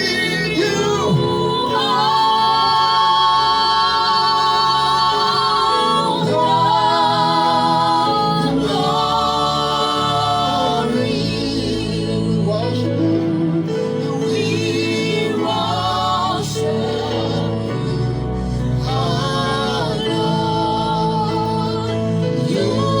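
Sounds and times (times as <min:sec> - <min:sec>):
gospel voices singing: 0:00.0 - 0:23.0.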